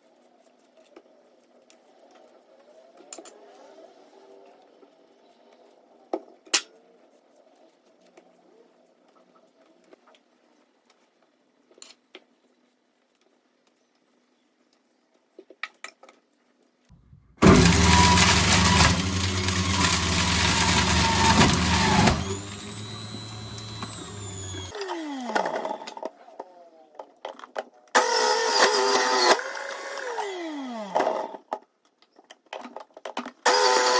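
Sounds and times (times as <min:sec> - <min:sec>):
small appliance motor running: 0:17.4 - 0:26.1, 0:28.0 - 0:31.4, 0:33.5 - 0:33.9.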